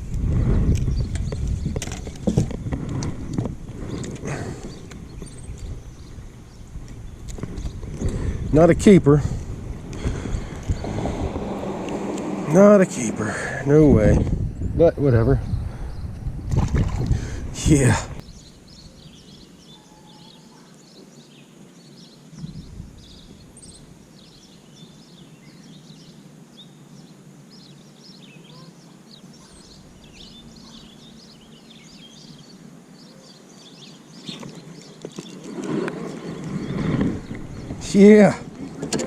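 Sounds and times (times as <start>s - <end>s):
faint outdoor ambience: 0.0s - 39.0s
small birds chirping: 0.7s - 2.4s, 3.0s - 12.0s, 14.4s - 16.4s, 17.1s - 39.0s
low noise: 1.8s - 15.7s.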